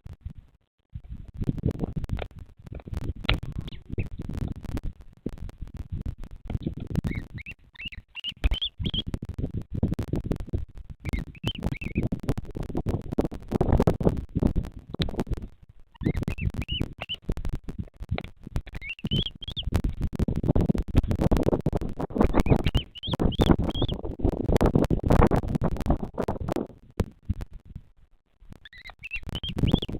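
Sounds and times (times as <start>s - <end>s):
bird rising chirps: 7.1s - 9.1s, 11.1s - 12.1s, 16.0s - 17.2s, 18.8s - 19.7s, 22.3s - 24.0s, 28.6s - 29.9s.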